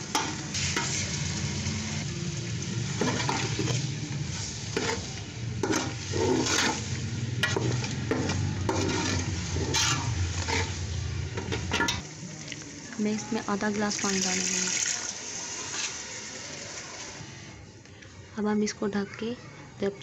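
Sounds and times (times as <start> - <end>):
chicken sizzling in hot oil: 0.0 - 17.6
spatula scraping metal pot: 4.7 - 10.8
steady low rumble: 6.6 - 12.3.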